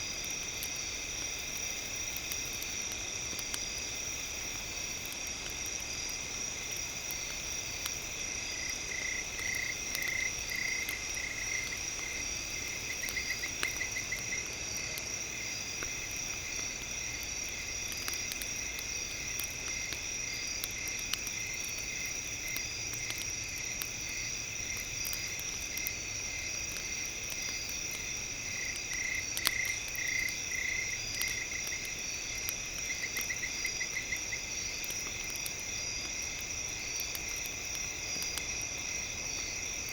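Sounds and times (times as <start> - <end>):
campfire crackles: 0.0 - 39.9
insect chirping chorus: 0.0 - 39.9.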